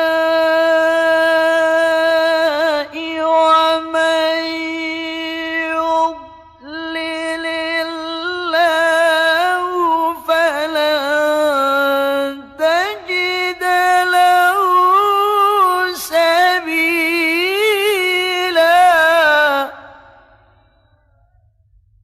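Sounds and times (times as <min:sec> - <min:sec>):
man reciting melodically: 0:00.0 - 0:20.8.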